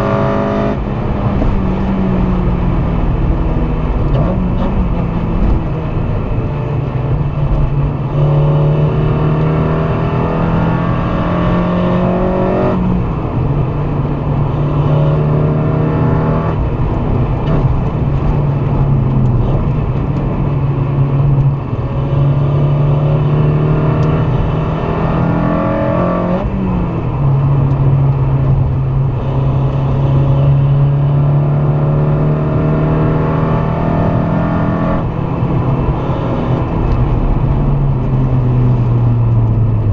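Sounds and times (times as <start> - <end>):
car engine accelerating: 0.0 - 39.9
road and wind noise: 0.0 - 39.9.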